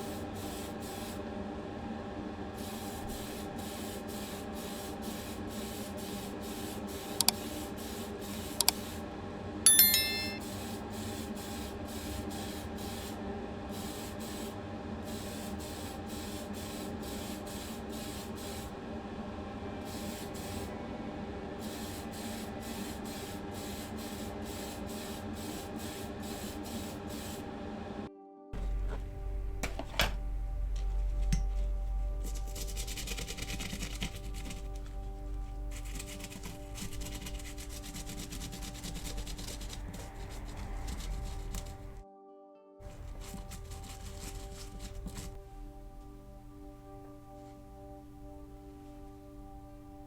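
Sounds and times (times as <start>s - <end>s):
spray paint hiss: 0.0s - 1.2s, 2.6s - 8.9s, 11.1s - 18.7s, 19.9s - 20.7s, 21.6s - 27.4s
click with brief ring: 9.7s - 10.4s
constant hum: 28.6s - 42.0s, 42.8s - 50.0s.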